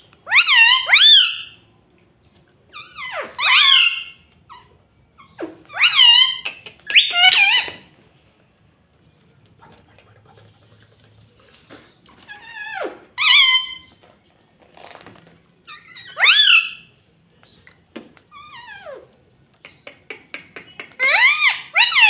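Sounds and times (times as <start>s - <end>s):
parrot squawking: 0.3s - 1.6s, 2.7s - 7.9s, 12.3s - 14.0s, 15.7s - 16.9s, 18.3s - 22.0s.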